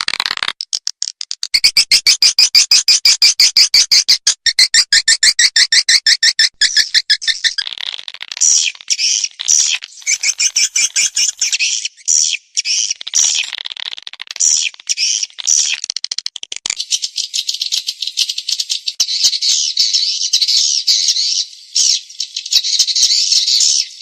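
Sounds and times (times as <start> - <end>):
swiftlets twittering: 8.4 - 13.7
rapid clicking: 12.9 - 16.8.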